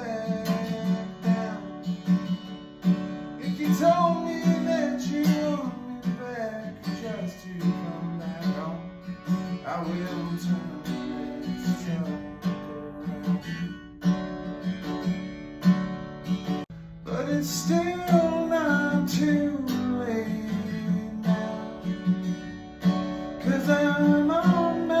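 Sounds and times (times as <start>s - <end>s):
person singing: 0.0s - 1.7s, 3.4s - 8.8s, 9.6s - 13.5s, 17.1s - 22.0s, 23.4s - 25.0s
acoustic guitar strumming: 0.0s - 25.0s.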